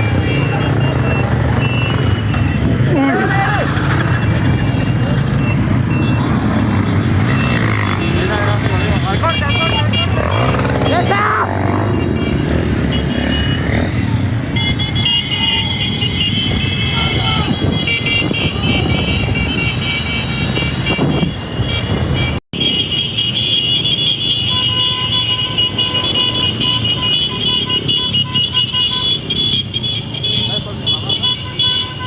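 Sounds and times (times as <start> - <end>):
crowd noise: 0.0 - 19.6
running engines: 0.0 - 22.2
motorcycle horns honking: 0.0 - 32.0.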